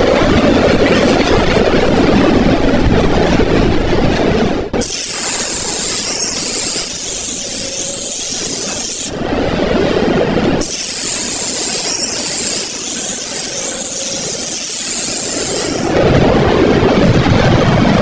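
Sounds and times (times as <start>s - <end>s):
loud steady hiss: 10.6s - 16.0s.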